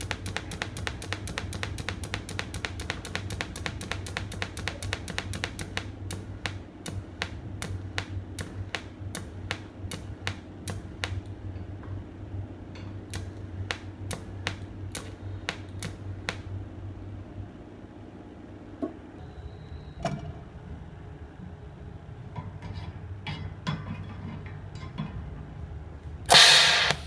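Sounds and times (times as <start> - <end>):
pulse generator clicking: 0.0 - 11.4, 13.1 - 16.6, 26.3 - 27.0
mains hum: 0.0 - 27.0.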